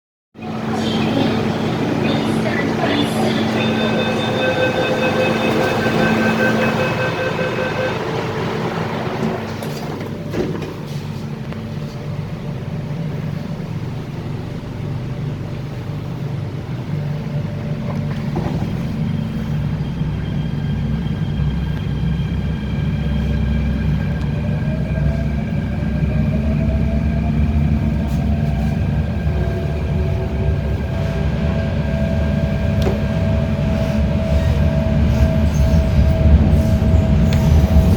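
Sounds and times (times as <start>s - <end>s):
train running with low hum: 0.4s - 37.9s
traction motor whine: 0.5s - 10.3s.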